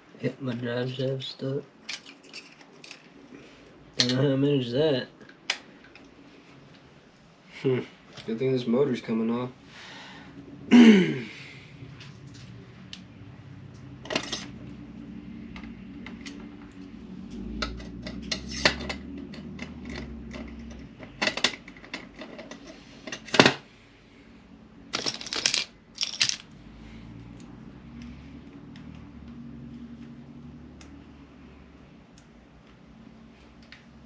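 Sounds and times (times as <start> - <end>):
metal tools clinking: 1.9 - 3.0, 24.9 - 26.6.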